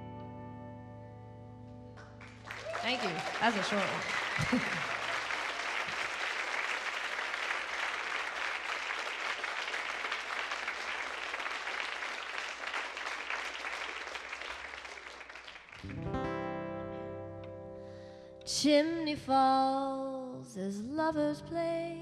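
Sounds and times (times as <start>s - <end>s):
audience applauding: 2.0s - 16.4s.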